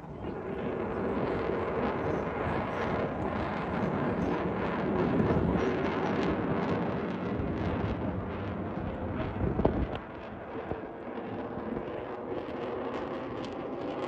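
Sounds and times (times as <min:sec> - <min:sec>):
jet aircraft flying past: 0:00.0 - 0:14.0.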